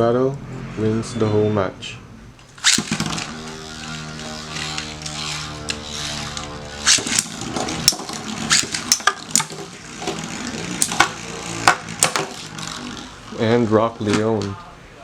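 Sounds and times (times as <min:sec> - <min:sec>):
spinning tops clashing: 0:02.4 - 0:14.2
spinning tops whirring: 0:02.4 - 0:14.6.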